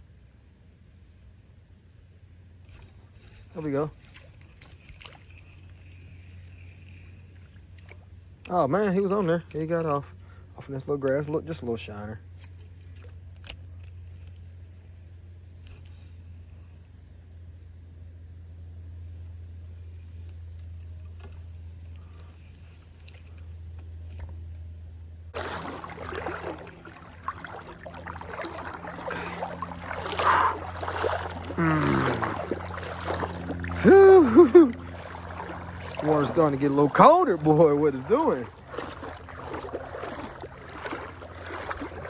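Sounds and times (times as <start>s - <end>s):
crickets droning: 0.0s - 42.0s
water sloshing and splashing: 2.6s - 14.3s, 25.3s - 42.0s
water gurgling: 25.4s - 42.0s.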